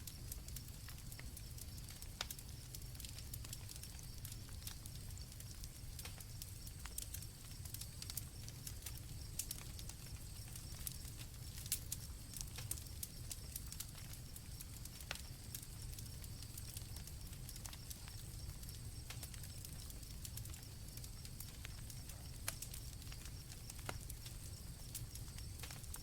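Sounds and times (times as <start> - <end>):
campfire crackling and popping: 0.0 - 26.0
crickets trilling: 0.0 - 26.0.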